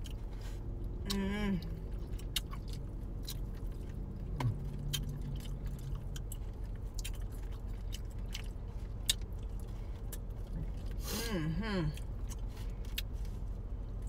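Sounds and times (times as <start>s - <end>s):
person humming: 1.0s - 1.7s
chewing and wet mouth clicks: 1.9s - 10.9s.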